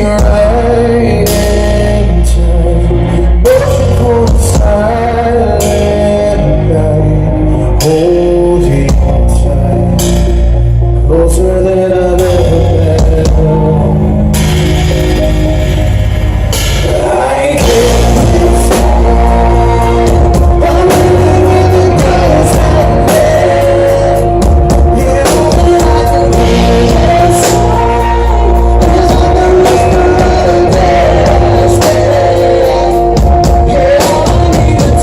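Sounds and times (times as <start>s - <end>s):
bass: 0.0s - 35.0s
electric guitar chords: 0.0s - 35.0s
drum beat: 16.7s - 23.6s, 24.4s - 32.2s.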